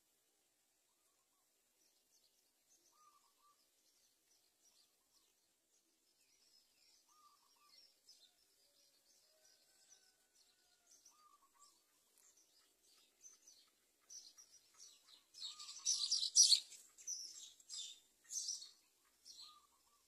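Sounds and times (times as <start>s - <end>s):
high hissy bird chirps: 15.4s - 18.8s.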